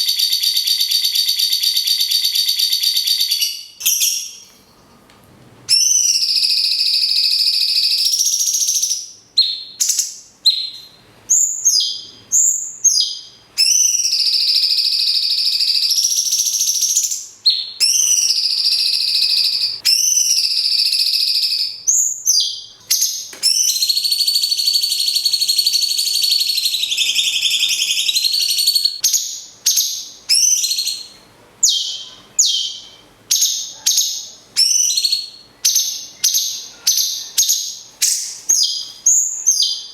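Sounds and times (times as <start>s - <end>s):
bird chattering trills: 13.6s - 20.4s.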